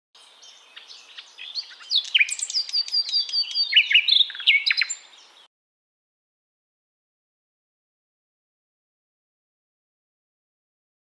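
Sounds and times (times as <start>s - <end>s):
songbird singing: 0.2s - 5.5s.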